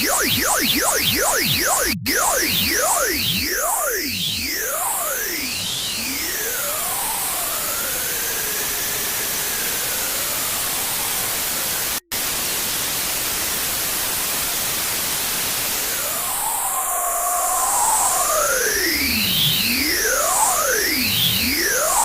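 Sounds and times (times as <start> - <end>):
sweeping electronic tones: 0.0 - 6.6.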